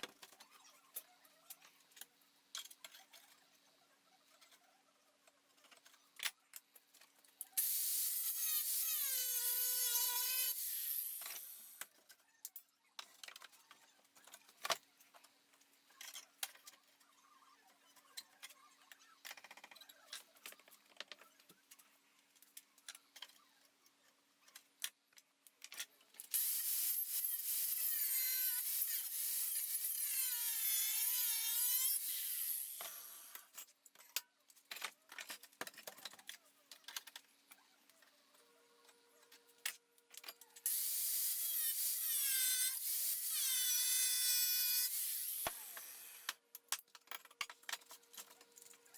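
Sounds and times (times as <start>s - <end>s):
angle grinder cutting steel: 7.6s - 11.8s, 26.4s - 33.5s, 40.6s - 46.4s.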